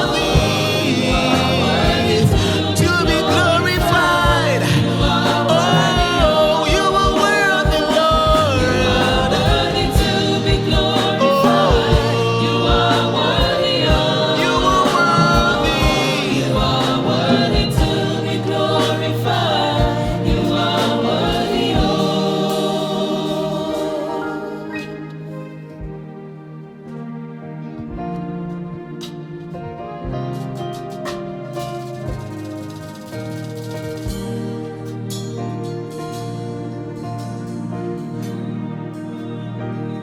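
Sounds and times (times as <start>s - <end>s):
band with bass and drums: 0.0s - 22.8s, 30.2s - 38.4s
choir singing: 0.0s - 40.0s.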